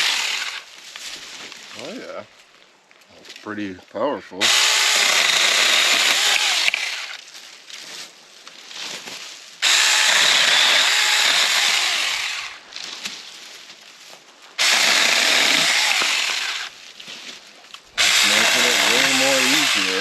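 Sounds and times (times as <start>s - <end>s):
electric chainsaw cutting branches: 0.0s - 0.7s, 4.4s - 7.2s, 9.6s - 12.6s, 14.6s - 16.8s, 18.0s - 20.0s.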